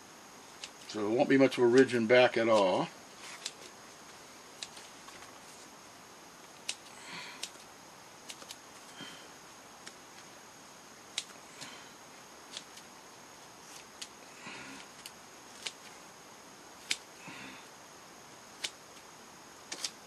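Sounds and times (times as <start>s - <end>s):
soft breathy sounds: 17.2s - 17.8s
scissors snipping foam: 19.7s - 20.0s.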